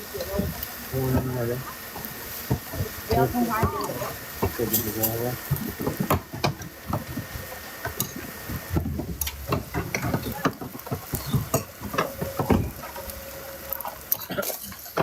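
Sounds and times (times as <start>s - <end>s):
faint voices: 0.0s - 6.0s, 9.8s - 12.9s
cooking utensils clicking and scraping: 0.0s - 15.0s.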